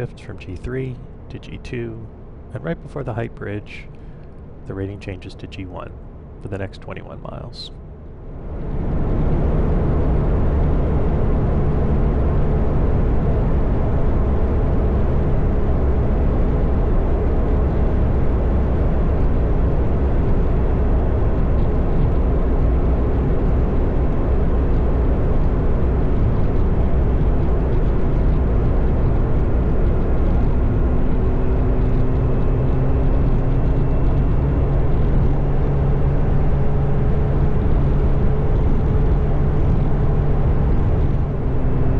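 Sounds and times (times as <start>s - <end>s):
wind and road noise: 0.0s - 41.9s
motorcycle engine hum: 8.4s - 41.9s.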